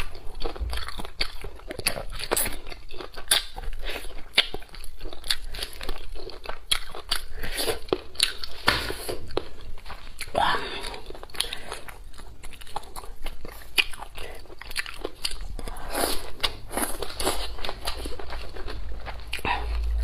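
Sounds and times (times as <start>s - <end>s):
person chewing crispy food: 0.0s - 20.0s.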